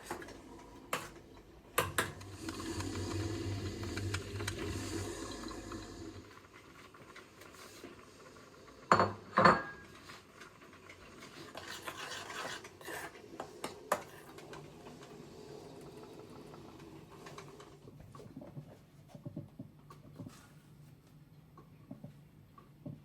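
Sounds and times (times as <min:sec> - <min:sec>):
dishes and cutlery clinking: 0:08.9 - 0:10.0.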